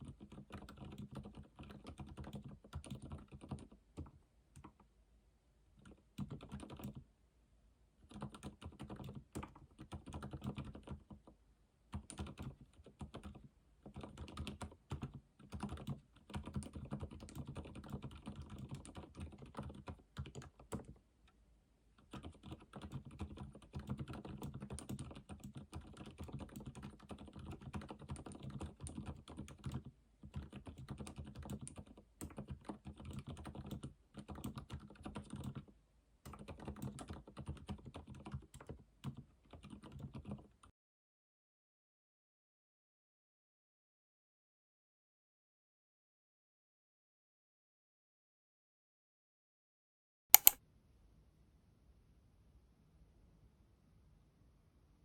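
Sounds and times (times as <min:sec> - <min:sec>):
typing on computer keyboard: 0:00.0 - 0:04.8, 0:05.8 - 0:07.0, 0:08.0 - 0:21.0, 0:22.0 - 0:35.7, 0:36.3 - 0:40.7, 0:50.4 - 0:50.6.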